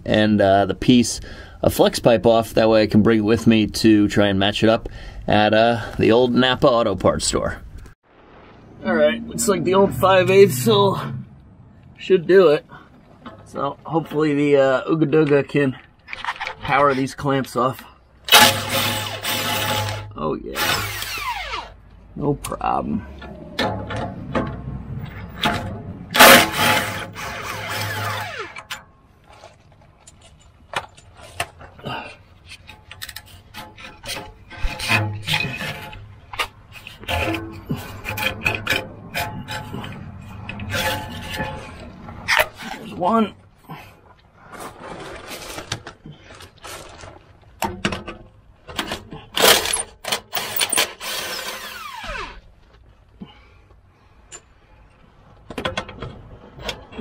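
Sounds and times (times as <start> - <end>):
impact wrench bursts: 18.3 - 21.8, 25.4 - 28.8
power tool whining: 18.3 - 21.8, 26.1 - 28.8, 50.4 - 52.4
metal tools clanking: 23.0 - 43.0.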